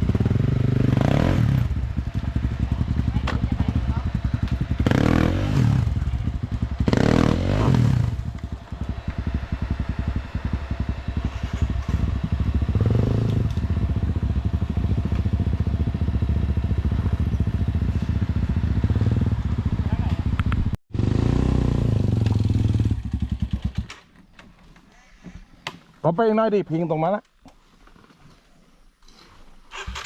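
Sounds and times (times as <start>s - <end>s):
motorcycle engine revving: 0.0s - 23.9s.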